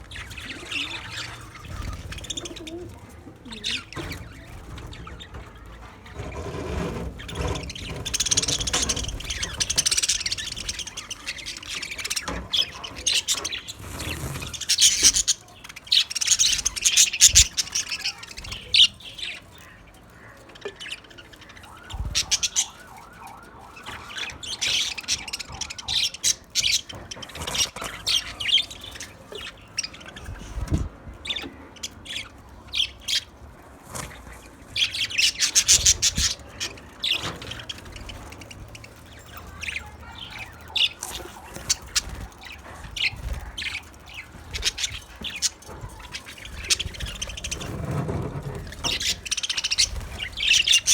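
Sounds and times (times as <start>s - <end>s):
budgerigars chirping and chattering: 0.0s - 50.9s.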